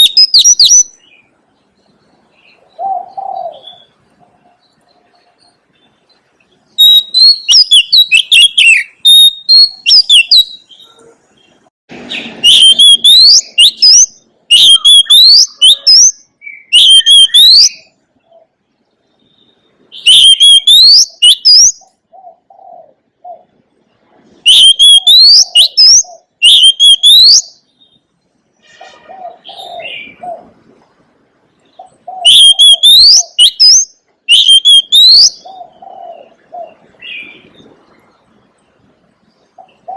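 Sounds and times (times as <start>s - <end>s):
bird singing whistled phrases: 0.0s - 1.2s, 6.8s - 10.9s, 12.1s - 17.9s, 19.3s - 21.8s, 24.5s - 27.8s, 32.1s - 35.5s
soft low bird calls: 0.0s - 39.9s.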